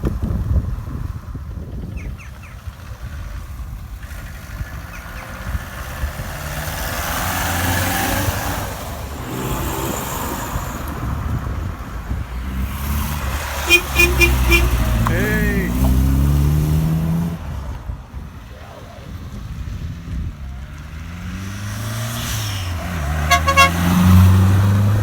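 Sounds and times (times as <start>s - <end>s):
car engines driving past: 2.6s - 25.0s
car horn toots: 13.6s - 16.1s, 23.2s - 24.2s.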